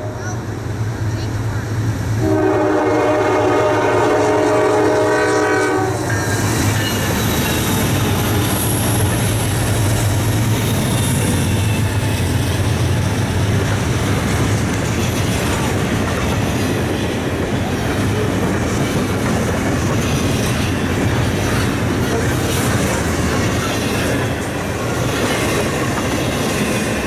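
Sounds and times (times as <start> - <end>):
train engine drone: 0.0 - 27.0
locomotive air horn: 2.2 - 6.3
wheels clattering on rail joints: 6.0 - 27.0.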